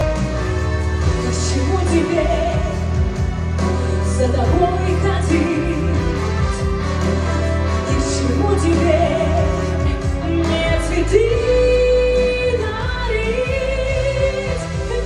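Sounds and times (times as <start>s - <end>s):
pop backing track with bass: 0.0s - 15.0s
woman singing: 1.0s - 15.0s.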